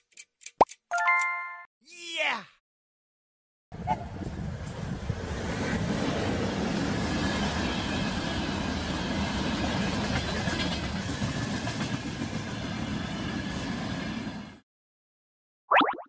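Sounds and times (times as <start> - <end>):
train wheels rolling on rails: 4.2 - 14.3.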